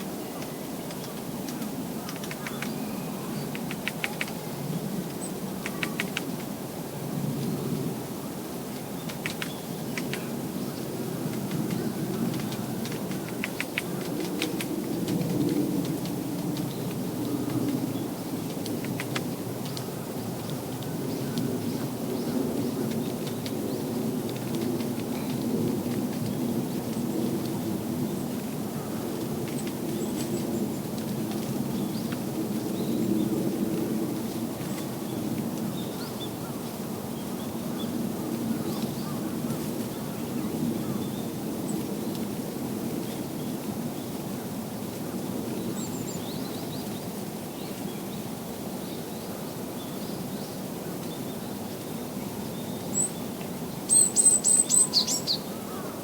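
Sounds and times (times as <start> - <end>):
songbird high-pitched call notes: 53.9 - 56.0.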